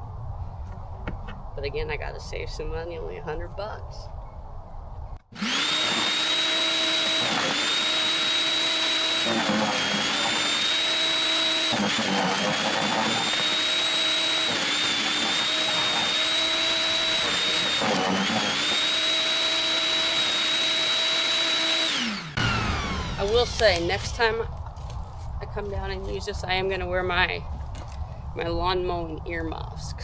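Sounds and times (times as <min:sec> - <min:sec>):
wood chipper running: 0:05.3 - 0:24.1
wood crunching in chipper: 0:05.3 - 0:24.1.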